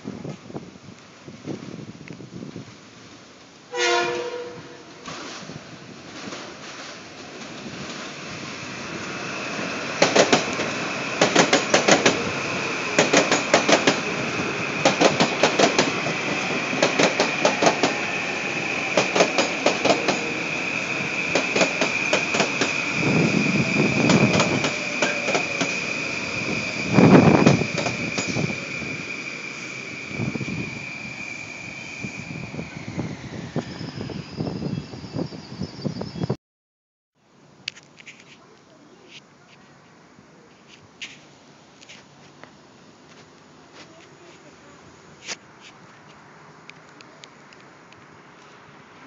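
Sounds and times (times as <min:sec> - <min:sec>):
train high whine: 0:00.2 - 0:36.4
wheels clicking over rail joints: 0:10.0 - 0:12.3, 0:12.9 - 0:14.1, 0:24.0 - 0:25.8.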